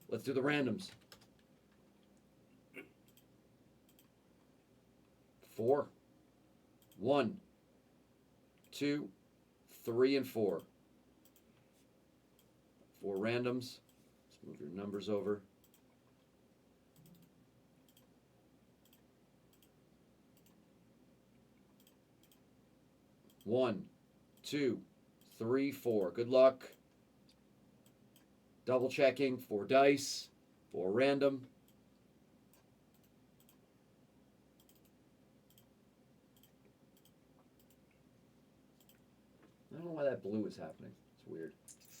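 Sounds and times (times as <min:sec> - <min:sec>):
faint computer mouse clicks: 0:03.0 - 0:03.3, 0:03.9 - 0:04.2, 0:06.8 - 0:07.0, 0:10.5 - 0:11.7, 0:15.6 - 0:16.3, 0:16.9 - 0:18.1, 0:18.8 - 0:19.8, 0:20.4 - 0:20.6, 0:21.6 - 0:22.5, 0:26.7 - 0:28.3, 0:31.6 - 0:33.6, 0:34.6 - 0:35.7, 0:36.3 - 0:37.9, 0:38.8 - 0:39.1.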